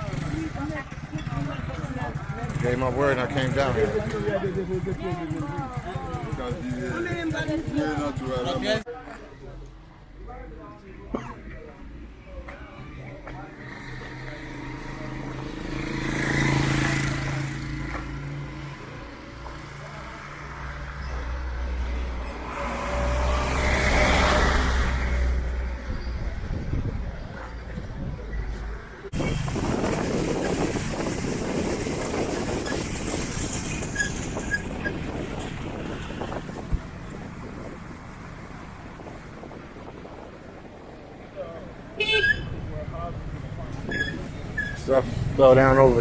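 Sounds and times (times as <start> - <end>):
street traffic: 0.0 - 46.0
vehicle passing close: 13.6 - 28.2, 29.0 - 41.3
wind buffeting microphone: 22.9 - 46.0.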